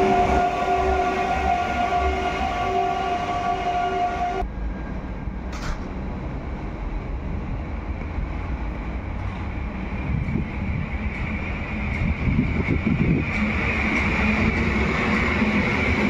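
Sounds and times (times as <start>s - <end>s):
train horn: 0.0s - 4.5s
train rumbling along platform: 0.0s - 16.0s.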